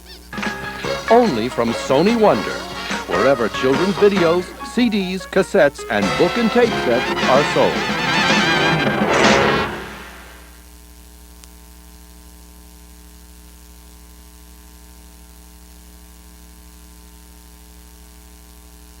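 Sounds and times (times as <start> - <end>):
faint tape hiss: 0.0 - 10.6.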